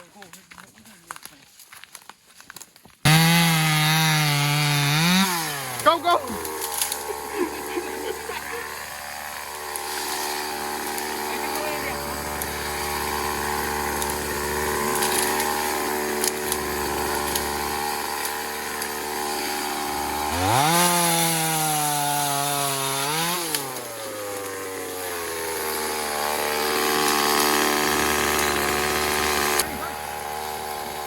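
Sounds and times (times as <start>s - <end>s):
chainsaw engine idling and revving: 3.0s - 31.0s.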